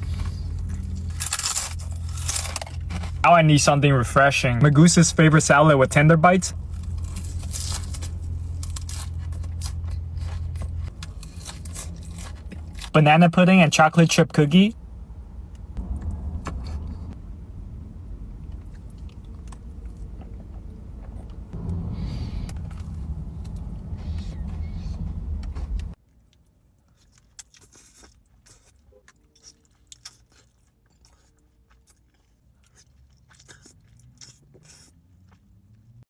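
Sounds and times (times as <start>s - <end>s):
steady low rumble: 0.0s - 26.0s
chewing with small clicks: 23.4s - 36.0s.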